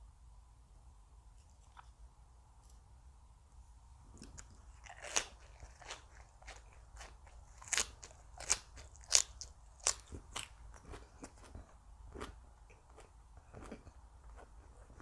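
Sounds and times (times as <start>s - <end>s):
crunchy chewing of raw vegetables: 4.0s - 15.0s.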